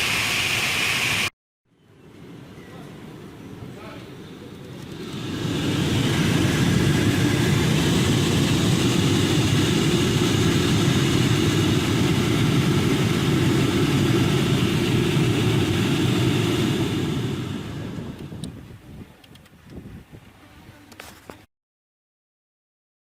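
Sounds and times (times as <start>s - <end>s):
heater motor humming: 4.8s - 18.6s.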